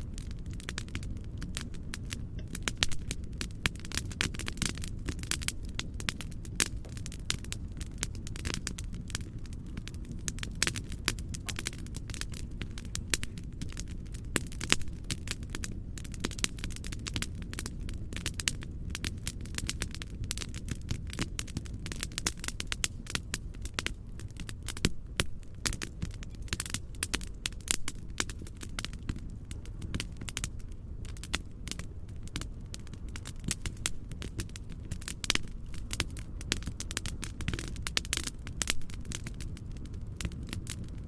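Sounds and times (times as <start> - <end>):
low rumbling noise: 0.0 - 15.2
wood fire crackling and popping: 0.0 - 41.0.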